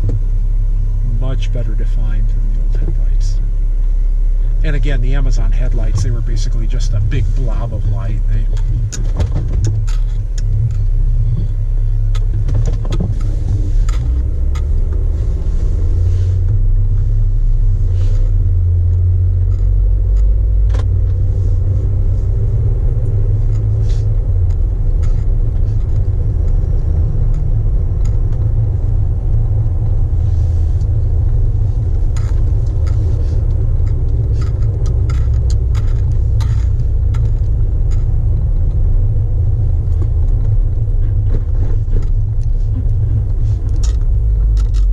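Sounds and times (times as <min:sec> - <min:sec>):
car engine rumble: 0:00.0 - 0:44.9
road noise: 0:00.0 - 0:44.9
faint ticks and rattles: 0:17.9 - 0:44.9.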